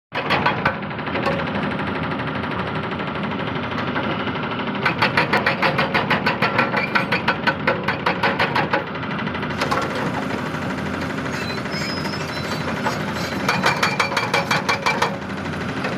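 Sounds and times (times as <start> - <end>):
diesel engine running: 0.8 - 5.9, 8.6 - 15.9.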